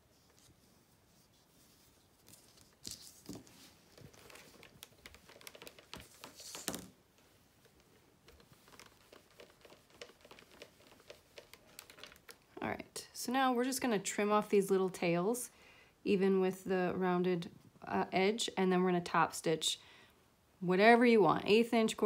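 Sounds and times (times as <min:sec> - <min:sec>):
fabric rustling and crinkling: 0:00.0 - 0:12.6.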